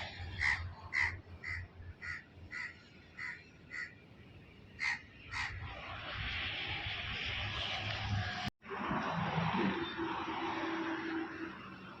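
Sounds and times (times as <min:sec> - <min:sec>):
crow cawing: 0:00.4 - 0:04.0, 0:04.8 - 0:05.6.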